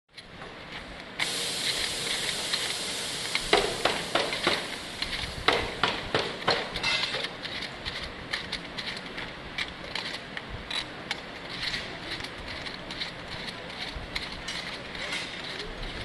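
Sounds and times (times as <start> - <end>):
sharp mechanical clacks: 1.1 - 16.0
compressed air hissing: 1.2 - 6.8.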